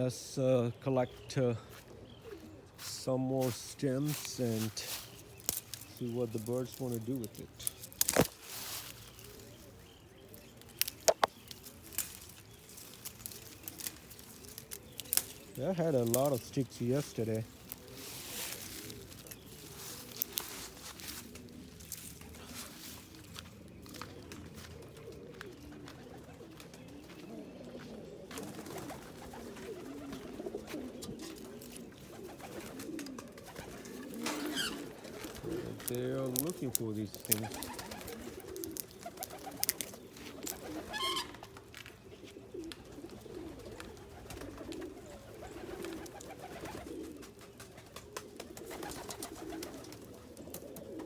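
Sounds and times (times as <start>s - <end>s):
pigeons cooing: 0.0s - 51.0s
sharp snaps: 10.6s - 12.2s, 35.8s - 40.7s.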